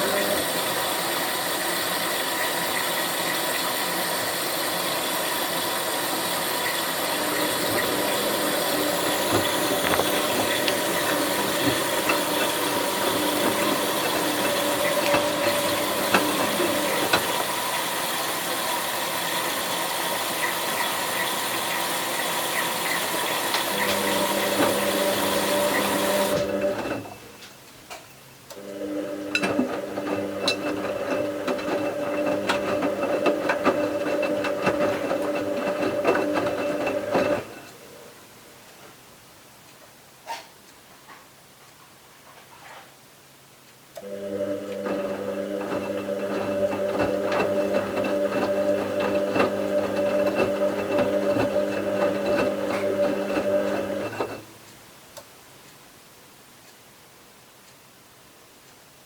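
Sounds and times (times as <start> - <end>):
washing machine motor humming: 0.0 - 27.4, 28.5 - 38.1, 44.0 - 54.6
clicks and knocks: 9.2 - 17.4.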